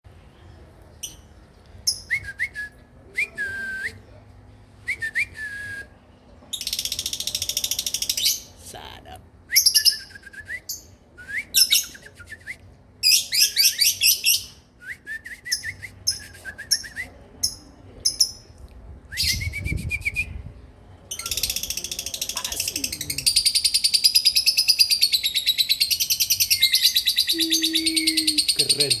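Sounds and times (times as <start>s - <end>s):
songbird singing trills: 21.1s - 29.0s.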